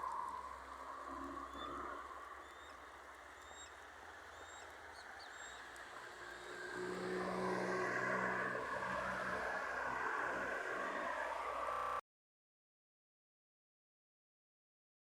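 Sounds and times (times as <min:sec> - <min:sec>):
motor vehicle approaching: 0:05.3 - 0:12.0.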